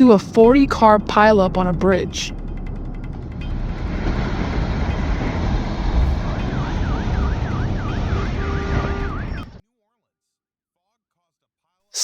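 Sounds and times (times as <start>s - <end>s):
heavy low rumbling: 0.8s - 8.4s
steady tone: 5.8s - 8.4s
emergency siren in fast yelp: 6.0s - 9.6s.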